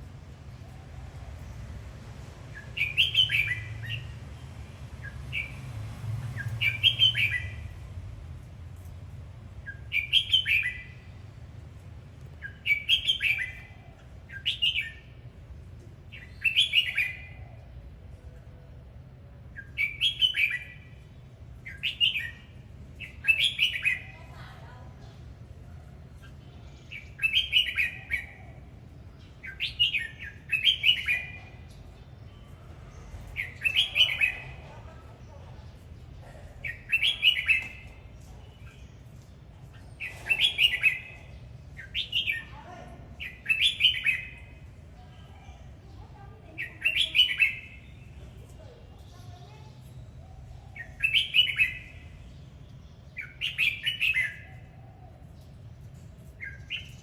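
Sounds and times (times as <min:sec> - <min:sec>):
bird singing bright phrases: 0:02.5 - 0:08.0, 0:09.5 - 0:11.2, 0:12.4 - 0:57.0.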